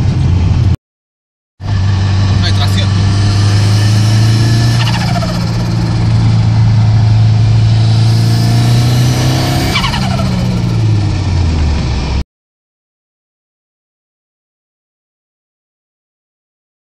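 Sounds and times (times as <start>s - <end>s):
car engine running: 0.0s - 0.8s, 1.6s - 12.2s
turbo whistle: 3.5s - 6.0s.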